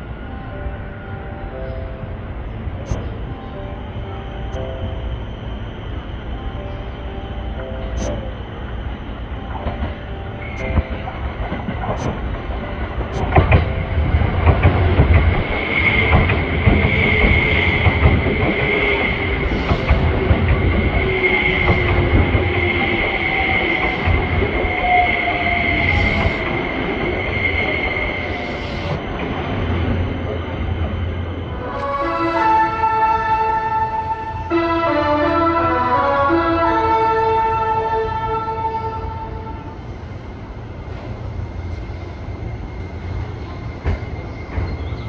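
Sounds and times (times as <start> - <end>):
train rumble: 0.0 - 45.0
train wheels clacking over joints: 10.6 - 31.0
train wheels squealing: 13.2 - 31.9, 39.4 - 45.0.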